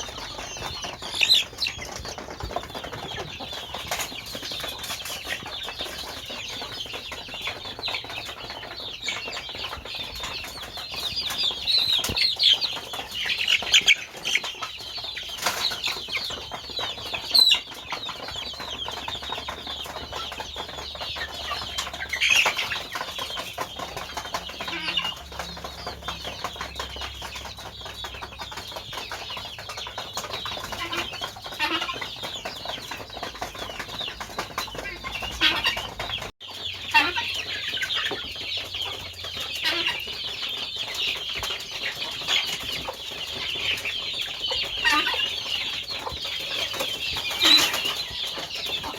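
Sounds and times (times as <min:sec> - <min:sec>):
chickens clucking: 0:00.0 - 0:48.9
rustling and scratching: 0:00.0 - 0:48.9.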